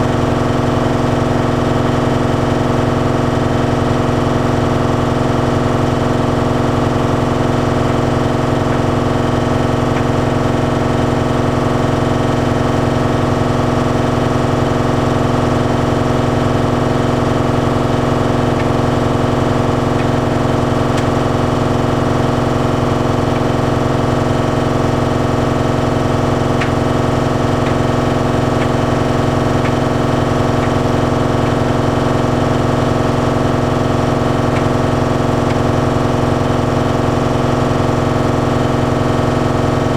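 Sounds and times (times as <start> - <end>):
tumble dryer humming: 6.3 - 12.0, 16.5 - 37.2.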